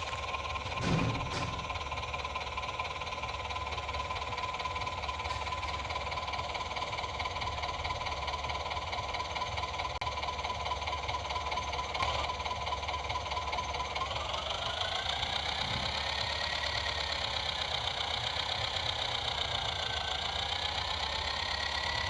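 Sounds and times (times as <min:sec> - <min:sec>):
small motor whining: 0:11.4 - 0:22.0.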